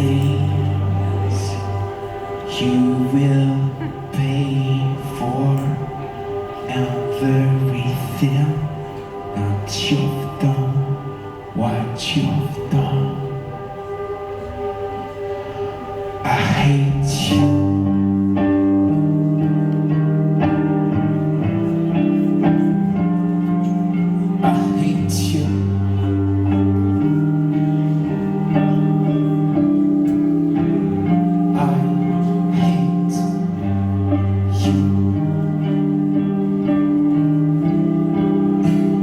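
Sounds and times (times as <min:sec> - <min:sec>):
guitars ringing chords: 0:16.9 - 0:39.0.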